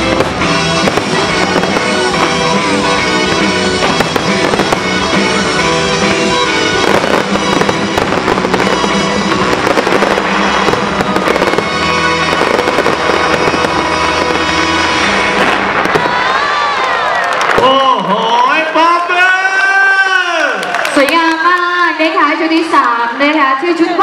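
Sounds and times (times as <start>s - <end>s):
loud music: 0.0s - 16.7s
fireworks bursting and crackling: 0.0s - 18.6s.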